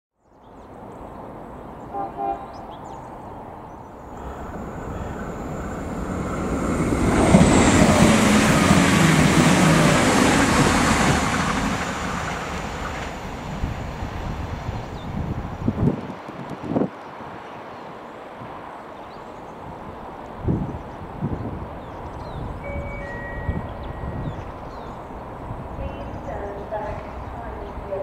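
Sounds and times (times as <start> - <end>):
diesel train passing: 0.7 - 28.0
train horn toots: 1.9 - 2.6.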